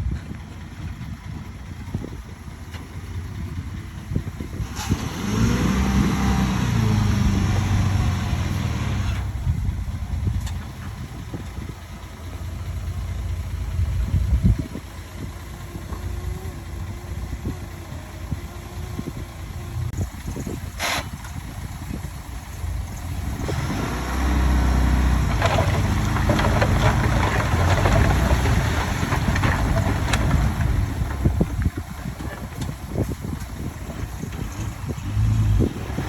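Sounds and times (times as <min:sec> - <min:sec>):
heavy diesel engine revving: 0:04.5 - 0:10.2, 0:22.6 - 0:36.0.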